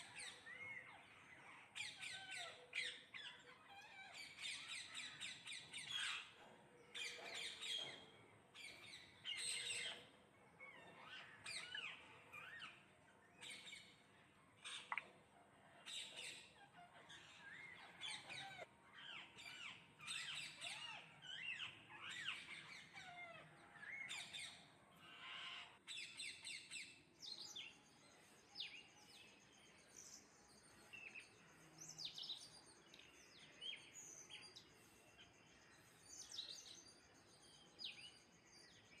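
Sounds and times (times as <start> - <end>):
parrots squawking and chirping: 0.0 - 26.0.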